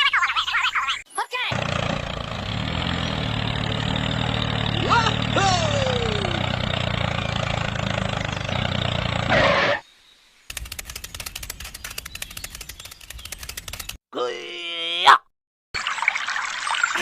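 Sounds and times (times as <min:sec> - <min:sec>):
rapid even clicking: 0:10.5 - 0:14.0.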